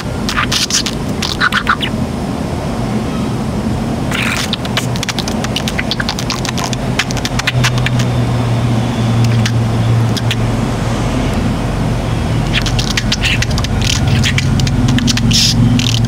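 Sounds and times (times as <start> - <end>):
budgerigar clicks and chirps: 0.0 - 1.9, 4.1 - 8.2, 9.2 - 10.5, 12.4 - 16.0
steady low hum: 0.0 - 16.0.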